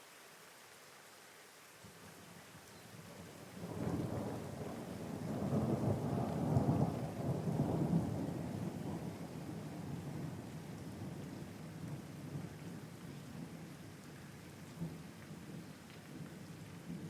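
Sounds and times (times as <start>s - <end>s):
steady rain: 0.0s - 17.0s
thunder rumbling: 3.2s - 13.6s.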